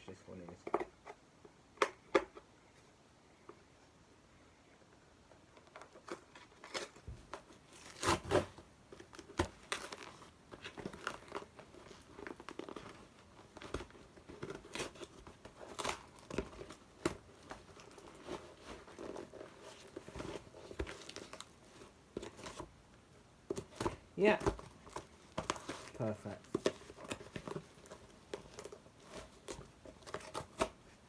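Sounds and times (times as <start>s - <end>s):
packaging crinkling and tearing: 5.8s - 22.7s.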